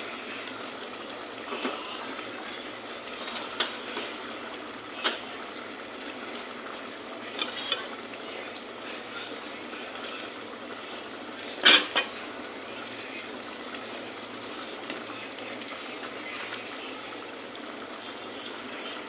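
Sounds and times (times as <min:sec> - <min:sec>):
metal utensil clinking on pan: 0:07.4 - 0:07.9, 0:11.6 - 0:12.1.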